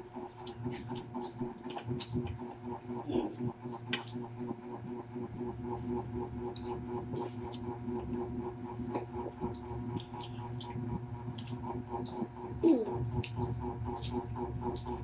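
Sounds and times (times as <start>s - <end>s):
chewing crispy fried chicken: 0.0s - 15.0s
steady low hum: 0.0s - 15.0s.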